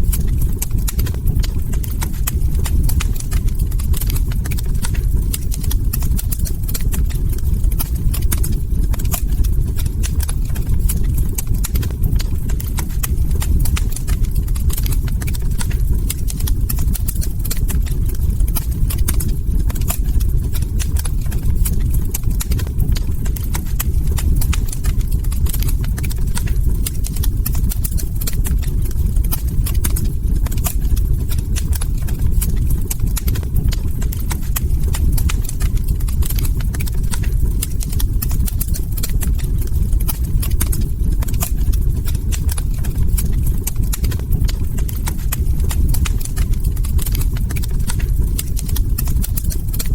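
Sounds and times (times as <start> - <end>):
fire snaps and pops: 0.0 - 49.9
low rumble of burning: 0.0 - 49.9.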